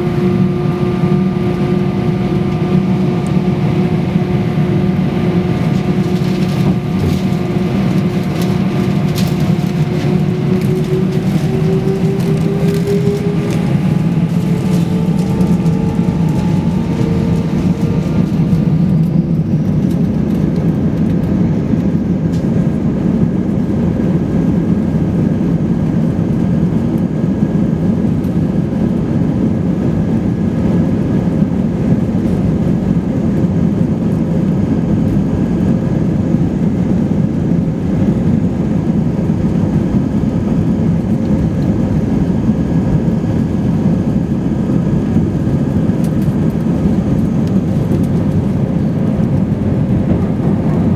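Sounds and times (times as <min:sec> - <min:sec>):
faint whine: 0:00.0 - 0:21.1
jet engines and airflow in cabin: 0:00.0 - 0:50.9.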